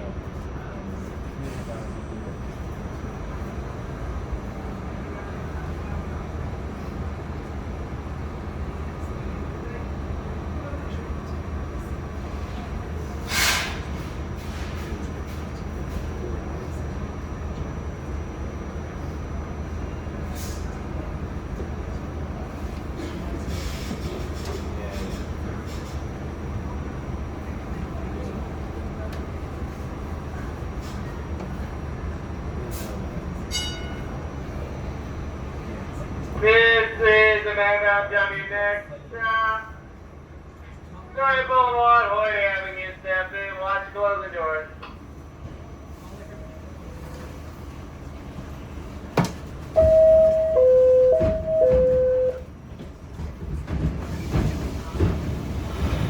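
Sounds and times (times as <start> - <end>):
subway car rumble and hum: 0.0 - 56.0
short high-pitched tone: 49.8 - 52.4.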